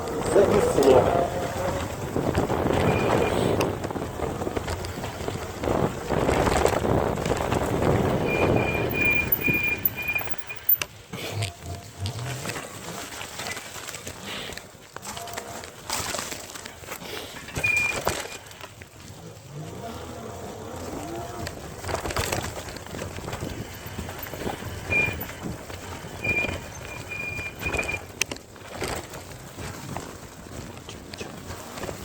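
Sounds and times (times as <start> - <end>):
short high squeaks: 8.3 - 10.8, 26.1 - 28.0.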